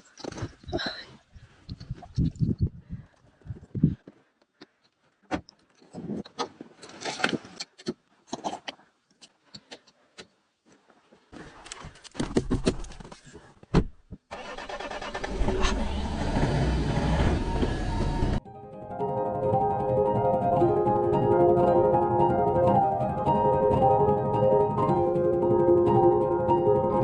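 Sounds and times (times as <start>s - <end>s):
vehicle engine starting and running: 14.3s - 18.4s.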